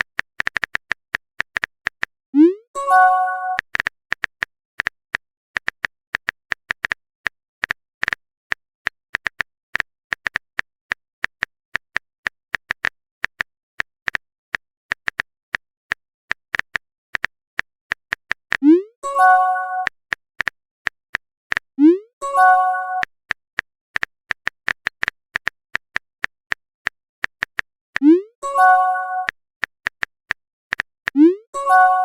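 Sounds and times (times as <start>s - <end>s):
smartphone keyboard typing clicks: 0.0s - 2.1s, 3.5s - 18.6s, 22.5s - 28.1s, 28.7s - 32.0s
message sent pop and chime: 19.0s - 19.9s, 28.5s - 29.3s.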